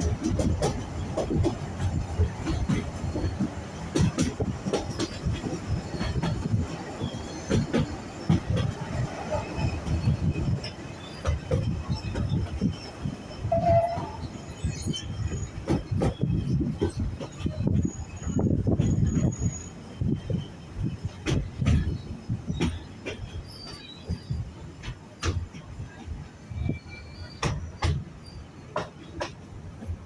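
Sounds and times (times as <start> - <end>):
train wheels clattering on track: 0.0 - 30.0
wheel squeal: 5.0 - 19.8, 21.8 - 25.4, 26.5 - 28.6.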